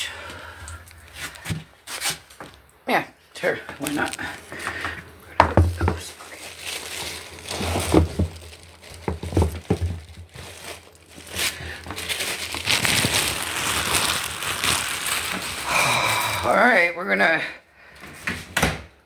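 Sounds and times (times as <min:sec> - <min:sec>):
material crinkling and rustling: 0:03.8 - 0:15.8
soft thumps: 0:05.4 - 0:06.1.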